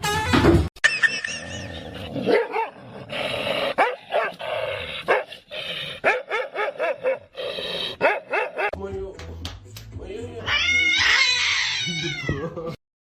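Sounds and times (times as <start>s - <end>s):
dog barking: 2.3s - 2.8s, 3.8s - 4.4s, 5.1s - 5.3s, 6.0s - 7.4s, 8.0s - 8.8s.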